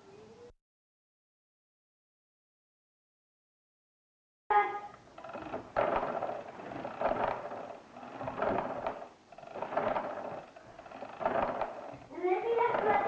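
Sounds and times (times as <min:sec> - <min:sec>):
mechanical calculator clattering: 0:05.2 - 0:13.0.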